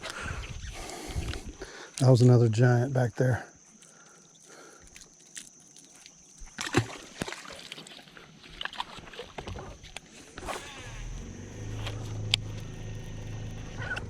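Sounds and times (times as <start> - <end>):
low hum: 10.5 - 14.0.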